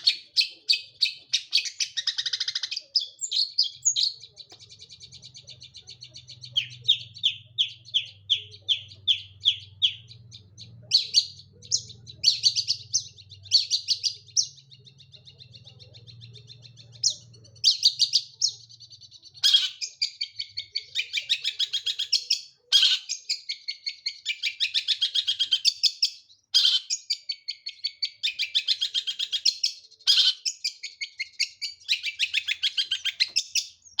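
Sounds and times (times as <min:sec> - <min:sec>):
bird singing: 0:00.0 - 0:34.0
faint low hum: 0:02.9 - 0:19.5.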